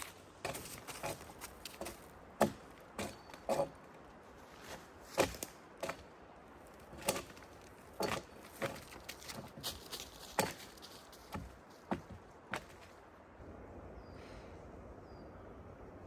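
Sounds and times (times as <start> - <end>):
sharp knocks and cracks: 0.0 - 3.8, 4.7 - 6.1, 6.8 - 12.9.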